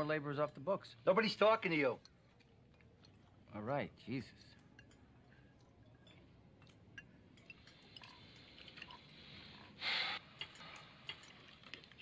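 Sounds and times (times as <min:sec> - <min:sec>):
cutlery and glassware clinking: 0:04.1 - 0:12.0.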